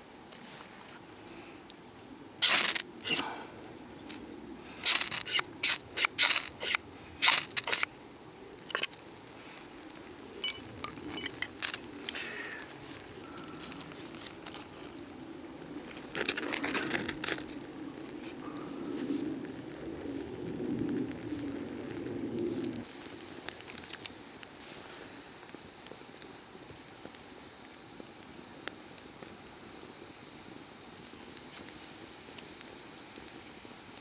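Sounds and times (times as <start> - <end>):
hard objects knocking and clattering: 10.4 - 11.8
ringing metallic clink: 10.4 - 11.8.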